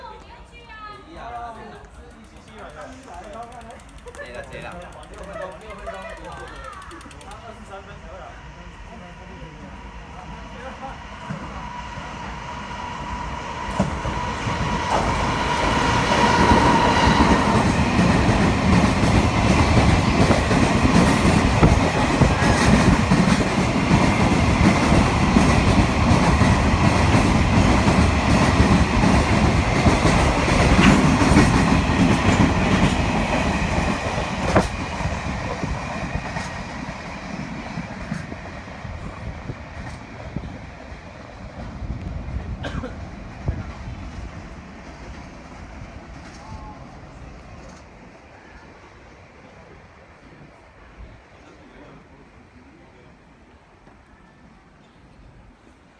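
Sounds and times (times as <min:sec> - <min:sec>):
rumble of train wheels: 0:00.0 - 0:55.9
wheels clicking over rail joints: 0:01.2 - 0:07.6, 0:13.7 - 0:36.7.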